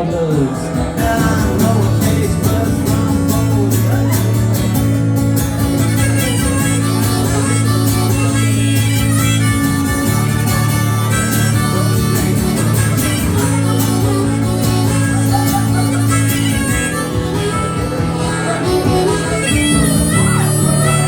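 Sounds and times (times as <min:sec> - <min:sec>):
strummed guitar: 0:00.0 - 0:21.0
harmonica solo: 0:01.4 - 0:21.0.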